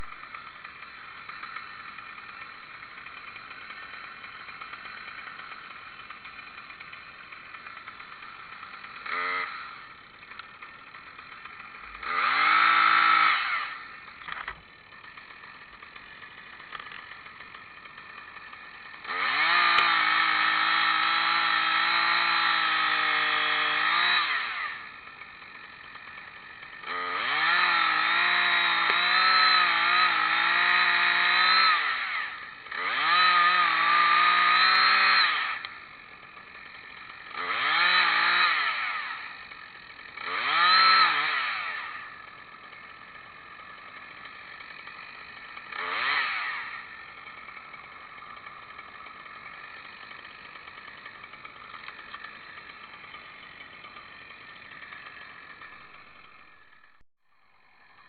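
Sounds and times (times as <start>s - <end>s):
chainsaw engine idling and revving: 0.0s - 58.0s.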